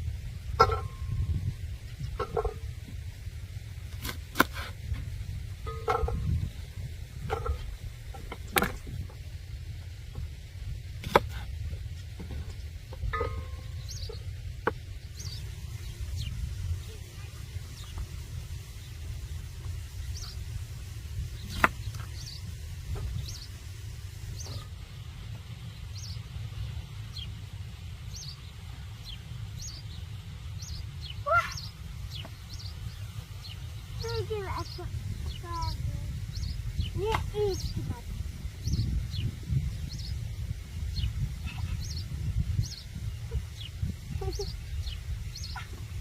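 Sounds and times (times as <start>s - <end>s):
steady low rumble: 0.0s - 46.0s
small birds chirping: 10.9s - 46.0s.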